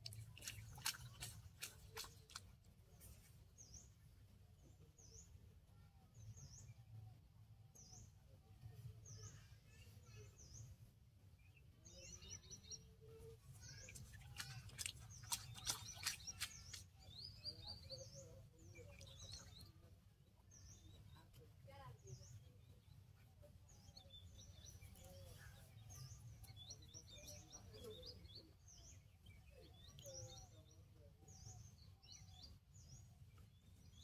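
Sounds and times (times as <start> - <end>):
bird chirping: 11.4 - 21.4.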